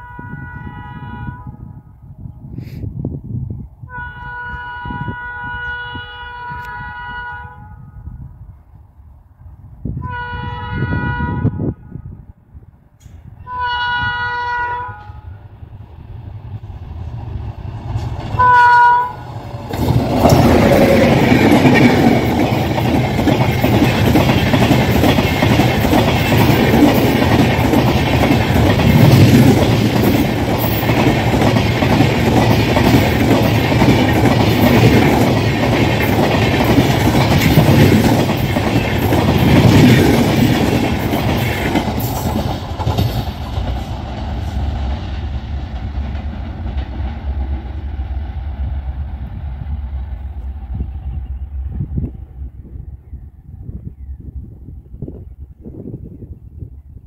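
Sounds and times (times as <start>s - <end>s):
locomotive horn blasts: 0.0s - 2.0s, 3.9s - 8.2s, 10.0s - 12.1s, 13.4s - 15.5s, 18.4s - 19.3s
train coaches rushing past: 13.0s - 53.6s
wheel clickety-clack over rail joints: 17.3s - 48.6s.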